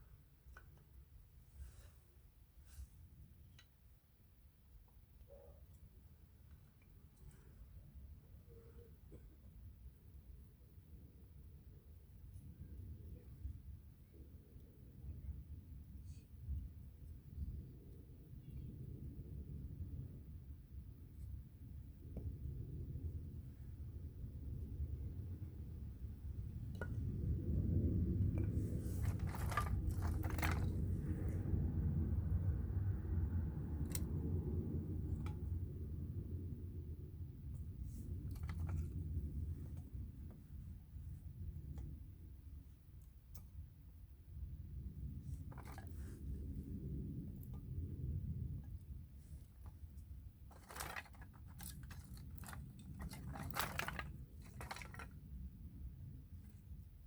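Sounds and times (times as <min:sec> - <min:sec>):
wood scraping on wood: 0:28.2 - 0:31.3, 0:50.5 - 0:55.2.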